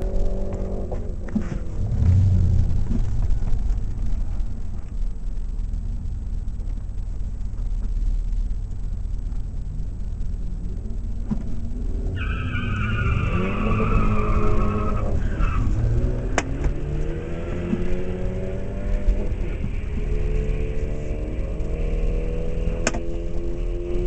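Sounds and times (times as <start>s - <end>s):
engine revving: 0.0s - 3.4s, 13.2s - 24.0s
car engine rumbling: 0.0s - 24.0s
high tire squeal: 12.1s - 15.9s.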